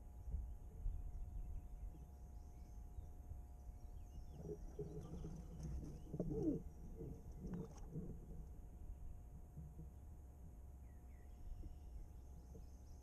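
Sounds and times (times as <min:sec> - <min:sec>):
steady low rumble: 0:00.0 - 0:13.0
small birds chirping: 0:01.4 - 0:07.2
bird cooing: 0:04.2 - 0:07.8.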